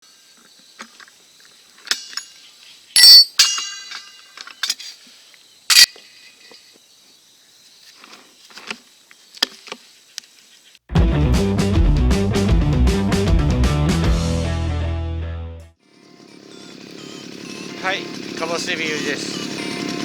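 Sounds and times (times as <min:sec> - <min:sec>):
sharp metallic clinks: 0:01.8 - 0:05.0, 0:05.7 - 0:06.7.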